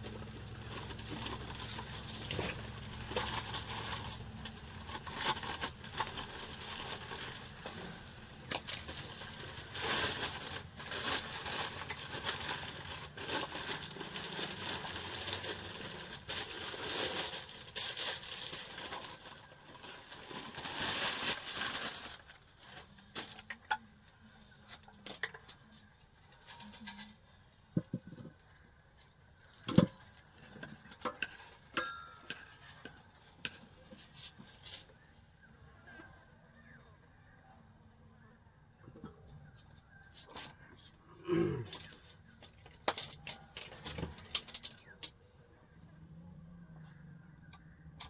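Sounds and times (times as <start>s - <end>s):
packaging crinkling and tearing: 0.0s - 31.6s, 41.6s - 45.2s.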